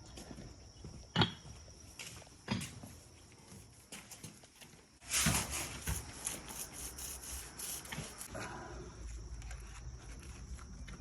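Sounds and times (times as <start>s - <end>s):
scraping and rubbing on masonry: 5.0s - 8.3s.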